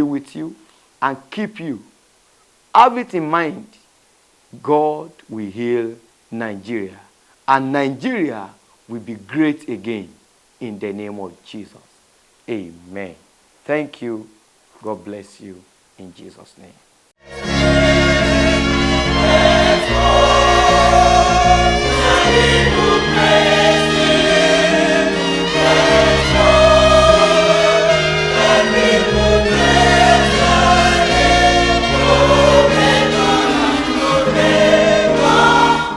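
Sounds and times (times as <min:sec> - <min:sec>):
gospel choir singing: 0:17.2 - 0:35.9
instrumental backing with bass line: 0:17.2 - 0:35.9.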